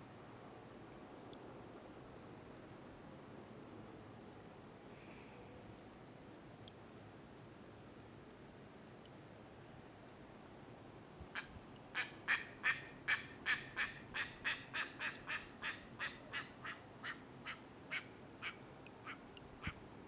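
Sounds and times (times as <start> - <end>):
bird harsh quacking calls: 11.4 - 19.8.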